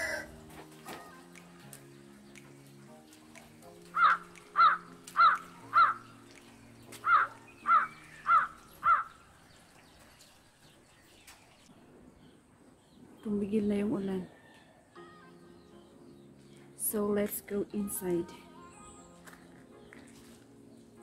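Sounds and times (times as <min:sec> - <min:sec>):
bird calling loudly: 0:03.9 - 0:09.3.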